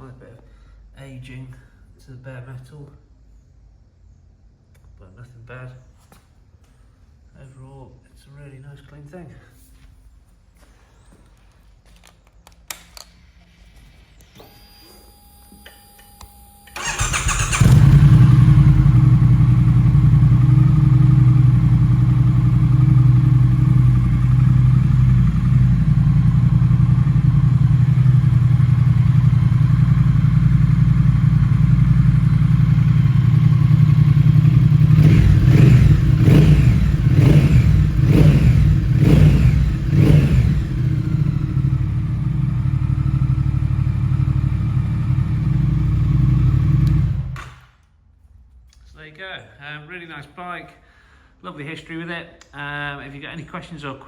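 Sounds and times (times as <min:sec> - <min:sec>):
motorcycle engine starting and idling: 0:16.6 - 0:47.7
engine throttle blips: 0:16.7 - 0:47.4
click: 0:46.8 - 0:47.5.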